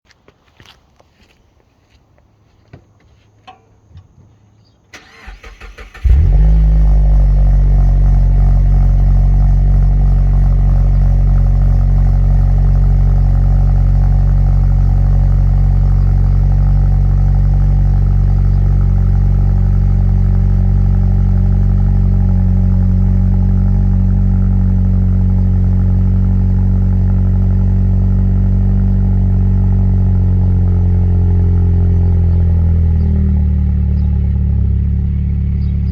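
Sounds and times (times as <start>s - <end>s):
car starter cranking: 4.9s - 6.6s
car engine idling: 5.0s - 35.9s.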